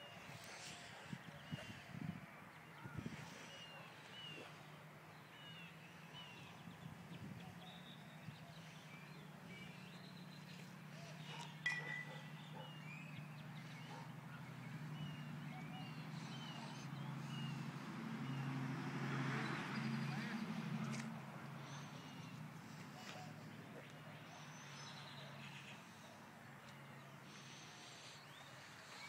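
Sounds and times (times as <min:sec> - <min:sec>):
small birds chirping: 0:02.8 - 0:18.6.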